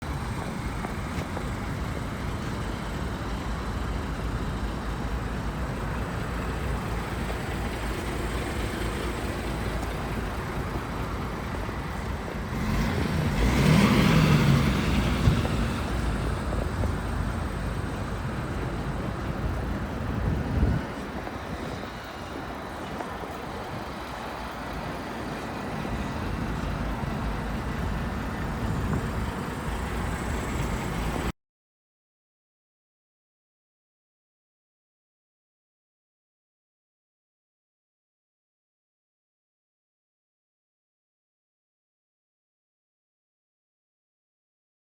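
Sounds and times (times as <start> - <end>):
truck engine rumbling: 0.0 - 31.3.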